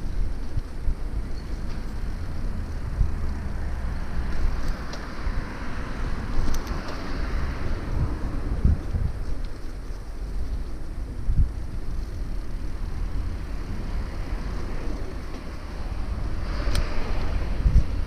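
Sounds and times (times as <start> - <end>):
city street noise: 0.0 - 18.0
wind buffeting microphone: 0.0 - 18.0
car passing: 1.6 - 9.0, 11.6 - 18.0.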